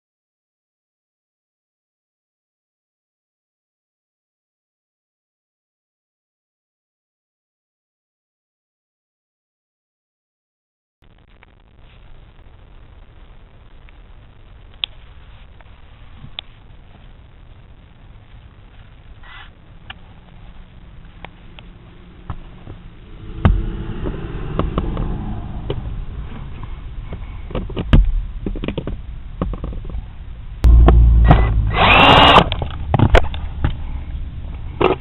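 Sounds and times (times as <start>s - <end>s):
power drill running: 31.2s - 32.6s.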